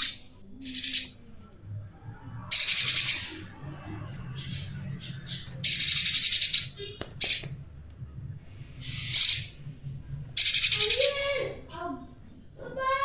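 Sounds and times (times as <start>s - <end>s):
bird harsh stuttering calls: 8.9s - 9.6s, 10.4s - 11.3s.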